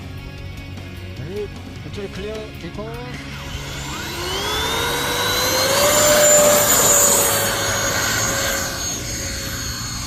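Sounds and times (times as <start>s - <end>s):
electric ducted fan whining: 3.2s - 10.0s.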